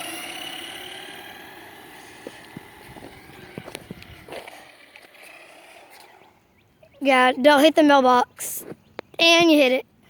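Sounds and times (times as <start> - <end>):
toy truck motor whining: 0.0 - 6.4.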